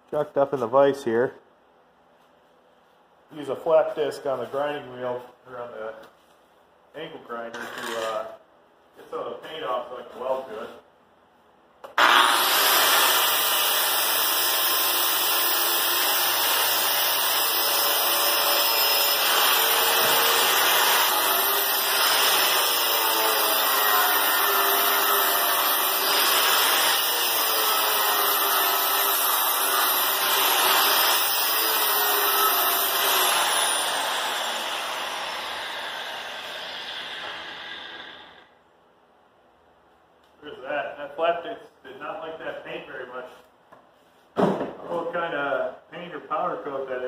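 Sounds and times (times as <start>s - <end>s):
angle grinder grinding steel: 12.0s - 38.4s.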